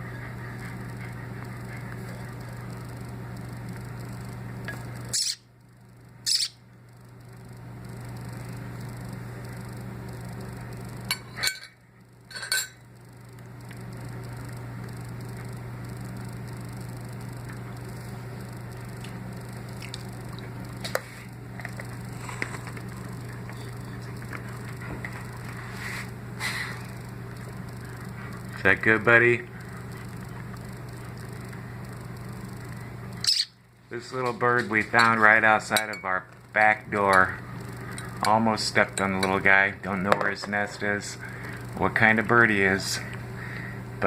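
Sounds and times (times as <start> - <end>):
steady low hum: 0.0 - 44.0
nestling bird cheeping: 6.2 - 6.6, 33.2 - 33.6.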